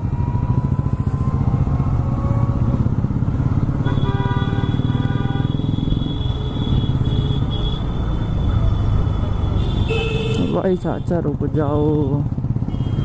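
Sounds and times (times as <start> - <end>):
motorcycle engine running: 11.4 - 13.0.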